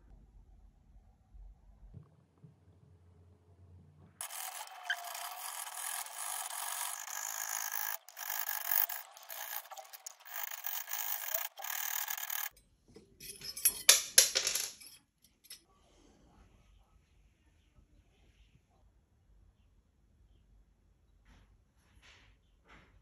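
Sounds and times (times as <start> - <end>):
saw blade sawing metal: 4.2 - 12.5
scraping with sharp clicks: 4.2 - 12.6.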